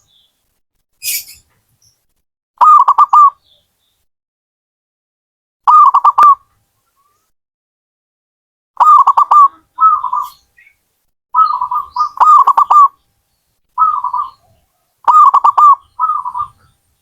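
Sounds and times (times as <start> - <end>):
dove cooing: 5.7 - 6.4, 8.8 - 10.4, 11.4 - 13.0, 13.8 - 16.7.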